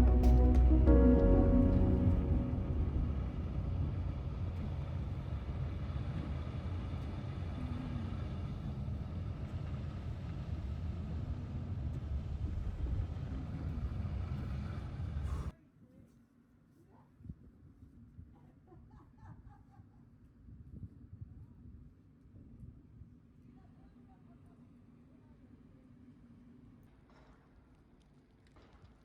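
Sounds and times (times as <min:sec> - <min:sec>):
deep low rumble: 0:00.0 - 0:08.6.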